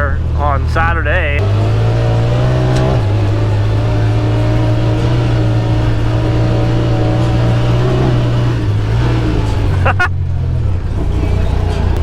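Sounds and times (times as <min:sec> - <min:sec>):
engine droning inside cab: 0:00.0 - 0:12.0.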